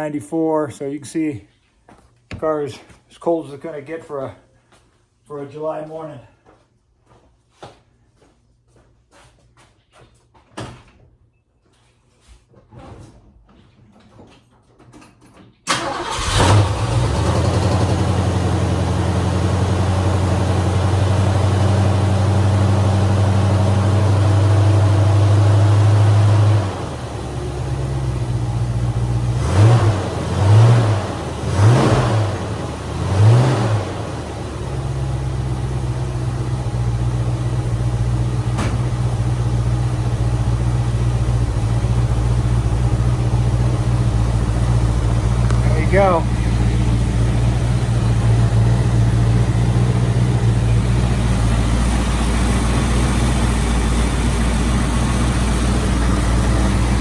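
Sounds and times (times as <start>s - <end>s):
car engine starting and idling: 15.6s - 57.0s.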